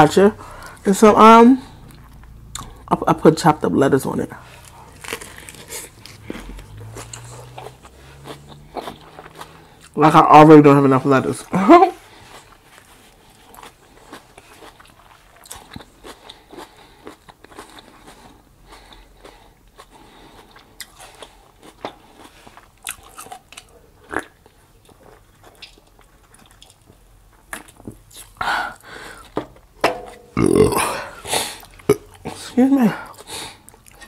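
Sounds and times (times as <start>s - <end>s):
crunchy lettuce chewing: 4.4s - 10.2s, 11.3s - 28.4s
person gulping a drink: 30.3s - 32.3s.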